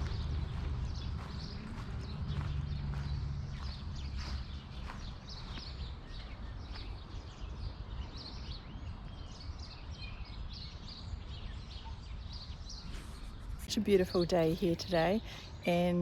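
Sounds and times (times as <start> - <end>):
steady low rumble: 0.0 - 5.6
small birds chirping: 0.0 - 16.0.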